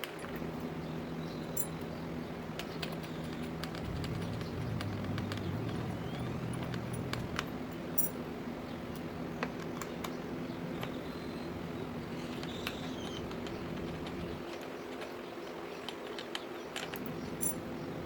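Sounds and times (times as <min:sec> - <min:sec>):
steady low hum: 0:00.2 - 0:09.5.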